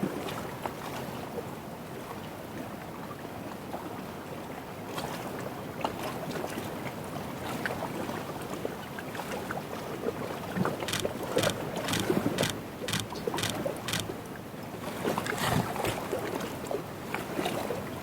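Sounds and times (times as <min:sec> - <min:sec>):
lake water lapping at shore: 0:10.0 - 0:17.8
small clicks: 0:10.8 - 0:14.2.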